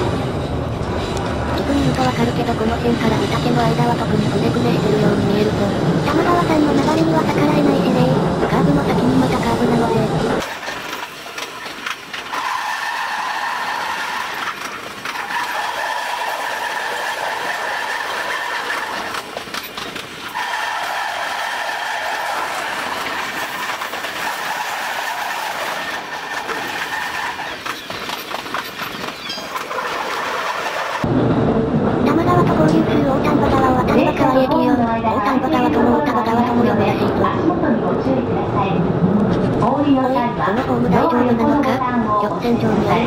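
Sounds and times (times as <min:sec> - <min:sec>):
electric train running: 0:00.0 - 0:31.4.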